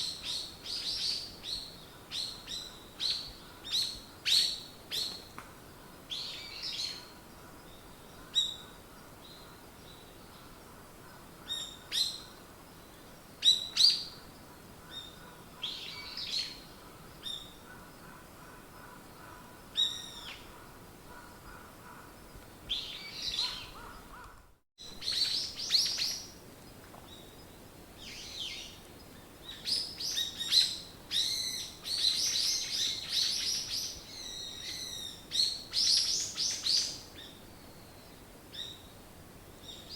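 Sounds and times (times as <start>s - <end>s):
songbirds chirping and whistling: 27.1s - 38.9s.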